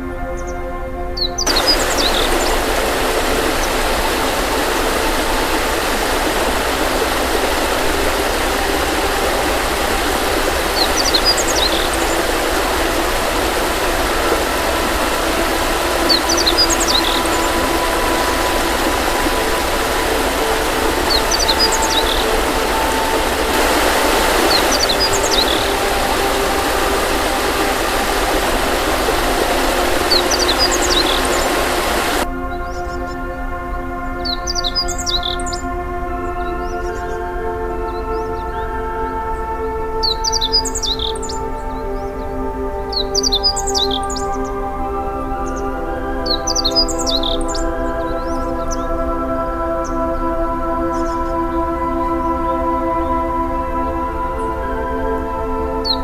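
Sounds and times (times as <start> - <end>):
soft ambient music: 0.0 - 56.0
steady rushing noise: 1.4 - 32.3.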